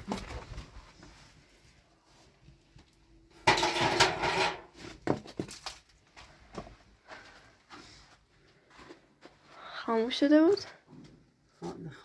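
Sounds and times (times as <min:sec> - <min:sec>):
metal objects clattering: 0:03.4 - 0:04.8.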